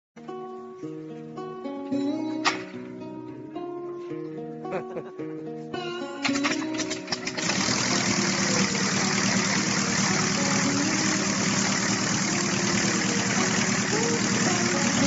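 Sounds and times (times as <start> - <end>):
small airplane engine running: 6.4 - 15.0.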